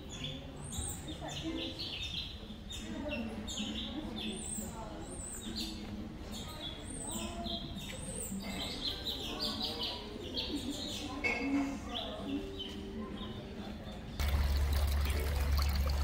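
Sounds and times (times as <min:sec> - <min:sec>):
small birds chirping: 0:00.0 - 0:11.2
people talking indistinctly: 0:00.0 - 0:15.8.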